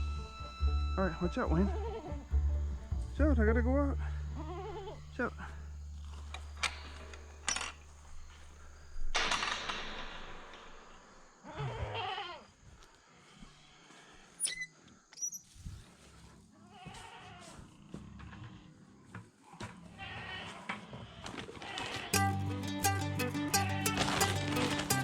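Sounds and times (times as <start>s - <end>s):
low hum: 0.0s - 9.0s
goats bleating: 1.6s - 2.3s, 4.0s - 5.7s, 11.5s - 12.4s, 23.4s - 25.0s
rustling: 4.1s - 11.2s, 23.5s - 25.0s
sharp clicks: 5.1s - 10.9s.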